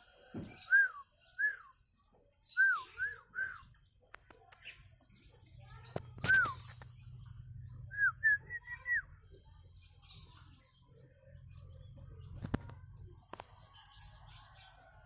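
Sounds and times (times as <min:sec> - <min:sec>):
bird whistling: 0:00.5 - 0:01.8, 0:02.5 - 0:03.8, 0:06.2 - 0:06.8, 0:07.9 - 0:09.2.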